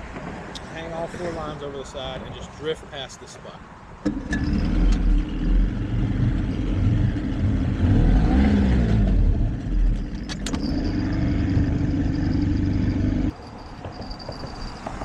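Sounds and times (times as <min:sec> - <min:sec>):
outboard motor running: 0:09.2 - 0:13.3.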